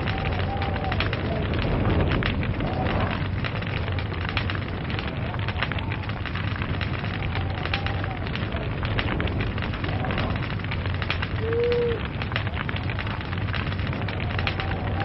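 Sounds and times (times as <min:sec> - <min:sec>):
log fire crackling and popping: 0:00.0 - 0:15.0
low rumble: 0:00.0 - 0:15.0
whistling tone: 0:14.4 - 0:15.0.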